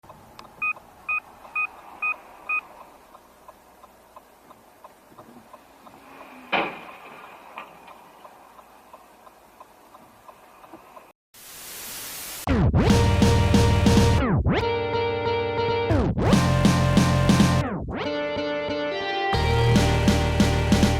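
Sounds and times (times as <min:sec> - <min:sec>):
faint regular ticking: 0:00.0 - 0:06.3, 0:07.8 - 0:11.1
short electronic beeps: 0:00.6 - 0:02.6.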